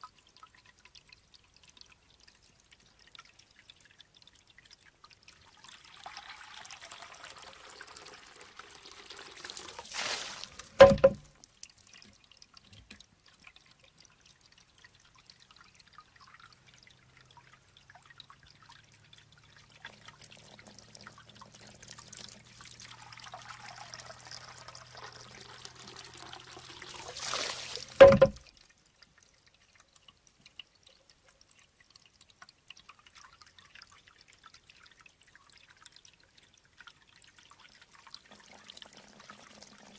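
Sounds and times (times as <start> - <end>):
water trickling: 0.0 - 39.9
bamboo tube knocking on stone: 10.8 - 11.3, 28.0 - 28.4.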